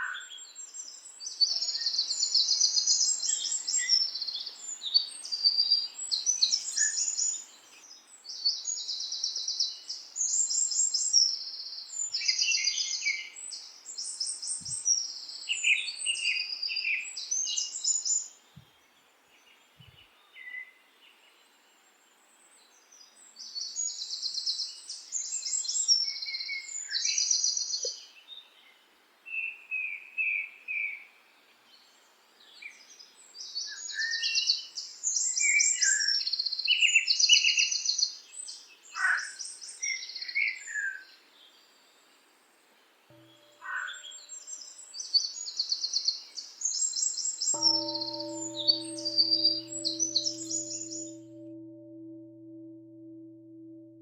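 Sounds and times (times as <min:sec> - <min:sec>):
songbirds trilling and chirping: 0:47.5 - 0:53.8.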